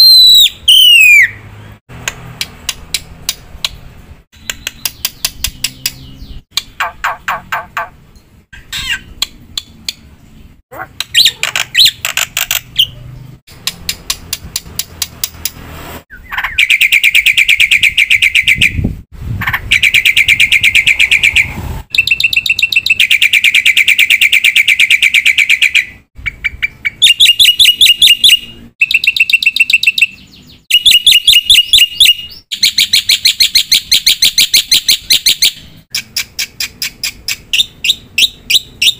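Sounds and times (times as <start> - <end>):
myna bird singing trills: 4.4 - 13.4.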